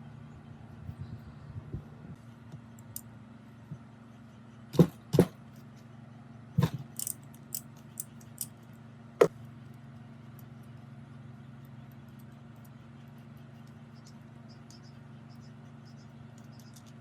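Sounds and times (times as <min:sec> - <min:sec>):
steady low hum: 0:00.0 - 0:17.0
metal tools knocking and clinking: 0:07.0 - 0:07.2.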